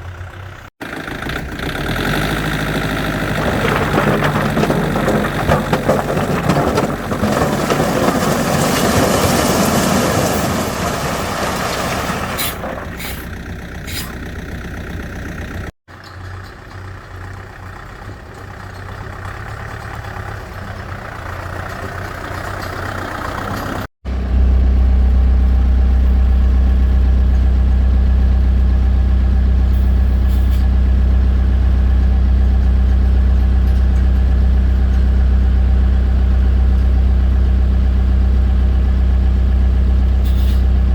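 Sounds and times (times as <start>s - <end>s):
heavy machine engine running: 0.0s - 40.9s.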